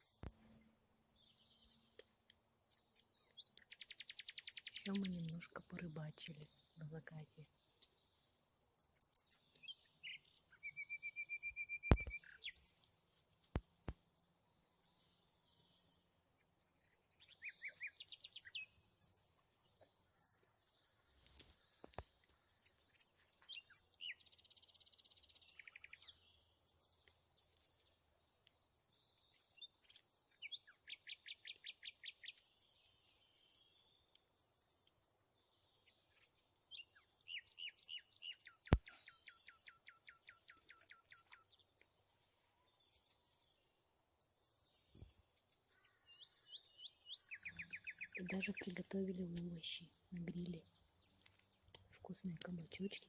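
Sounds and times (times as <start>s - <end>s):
songbirds chirping: 0.0s - 53.0s
bird trill: 8.8s - 12.8s, 45.7s - 53.0s
bird whistle: 10.6s - 12.6s.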